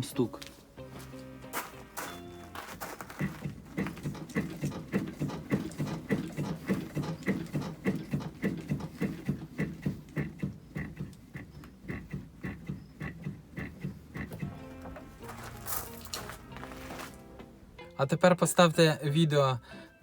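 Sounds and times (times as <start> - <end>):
car suspension knocking: 2.1 - 16.0.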